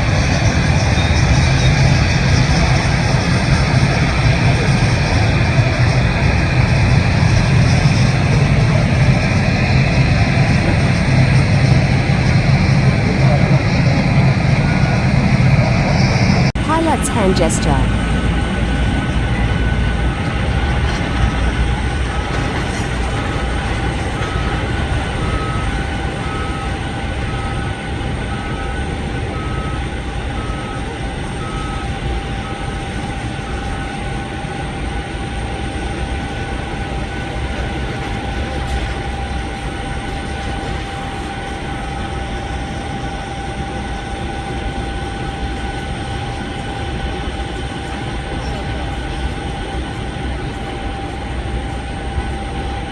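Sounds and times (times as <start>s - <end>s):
jet engines whining: 1.8s - 31.2s.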